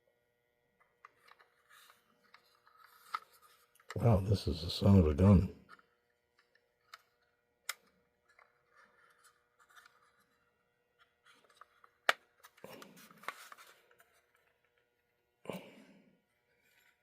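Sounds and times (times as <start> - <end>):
faint scraping of small parts: 1.0 - 4.0, 8.2 - 14.5, 16.4 - 17.0.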